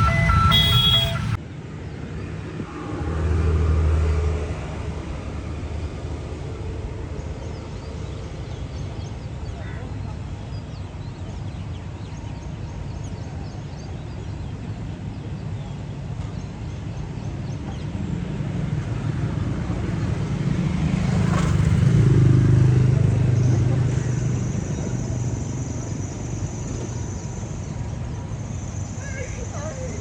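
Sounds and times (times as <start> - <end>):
motor vehicle passing by: 0.0 - 1.4, 2.1 - 8.5, 17.5 - 28.1.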